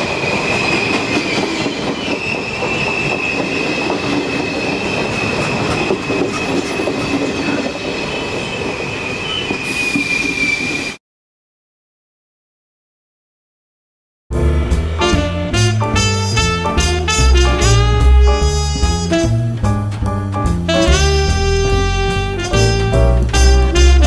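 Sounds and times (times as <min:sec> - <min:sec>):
train wheels rumbling on rails: 0:00.0 - 0:11.0, 0:14.3 - 0:24.0
high-pitched wheel squeal: 0:00.4 - 0:11.0.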